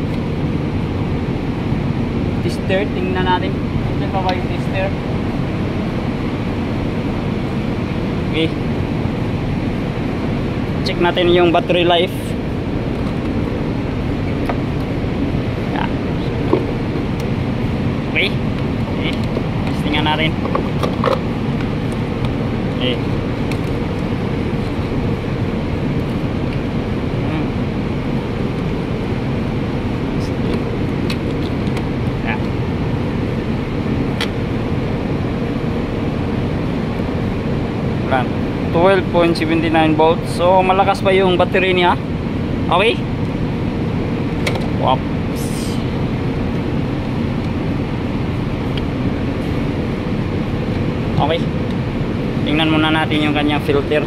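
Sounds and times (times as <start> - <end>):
faint hum: 0.0 - 54.0
low machinery rumble: 0.0 - 54.0.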